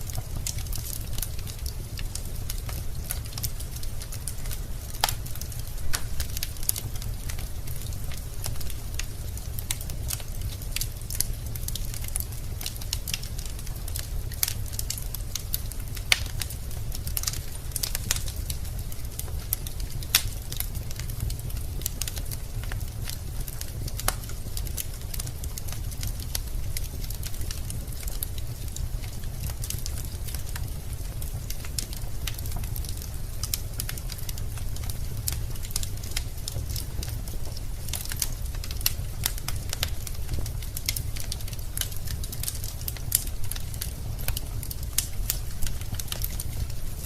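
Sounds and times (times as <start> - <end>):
burning logs crackling and popping: 0.0 - 47.0
low rumble of flame: 0.0 - 47.0.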